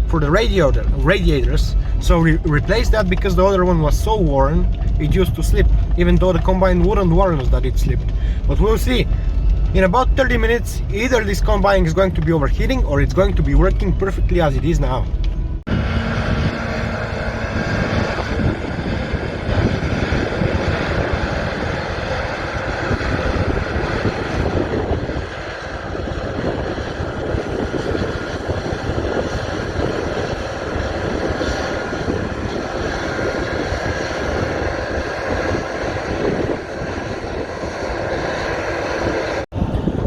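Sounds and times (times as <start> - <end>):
combine harvester running: 0.0 - 40.0.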